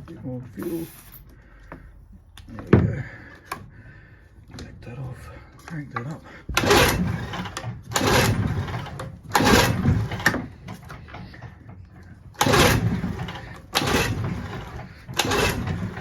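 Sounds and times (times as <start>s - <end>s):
outboard motor recoil starter pulls: 4.5s - 16.0s.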